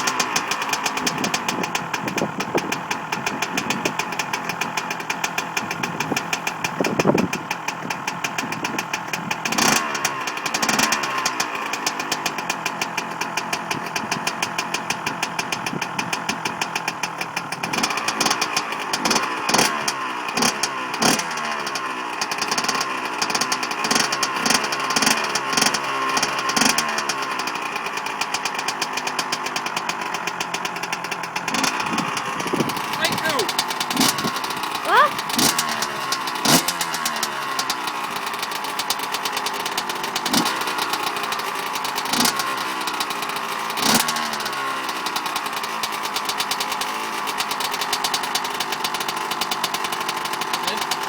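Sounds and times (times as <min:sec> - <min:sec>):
two-stroke engine idling: 0:00.0 - 0:51.0.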